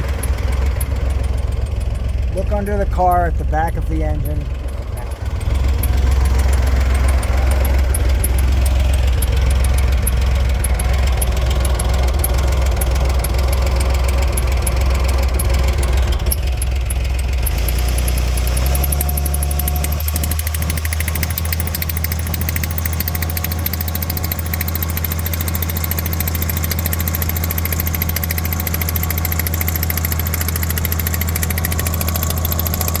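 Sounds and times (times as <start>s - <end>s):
car engine humming: 0.0s - 33.0s
fast even chattering: 2.3s - 5.1s.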